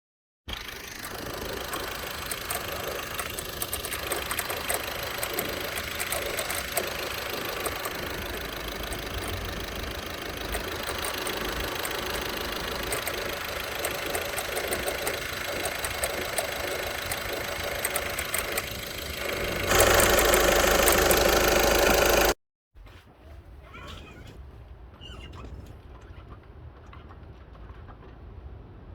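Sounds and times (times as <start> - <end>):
diesel engine running: 0.5 - 22.4
light clicks from engine belt: 0.5 - 22.4.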